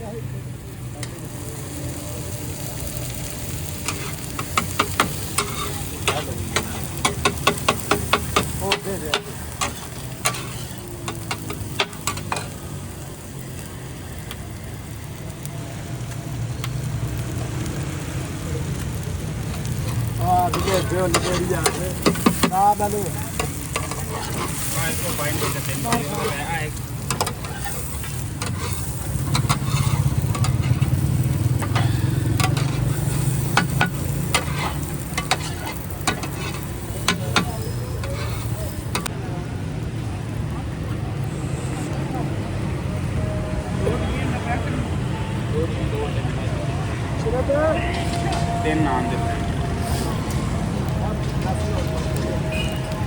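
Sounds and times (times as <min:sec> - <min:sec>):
food frying with sizzle: 0:00.0 - 0:43.2
utensil clacking against pan: 0:03.8 - 0:12.5, 0:19.5 - 0:39.1.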